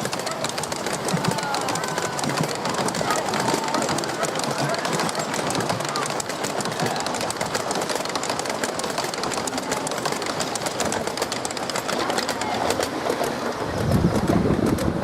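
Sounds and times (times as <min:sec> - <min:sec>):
miniature train clattering: 0:00.0 - 0:15.0.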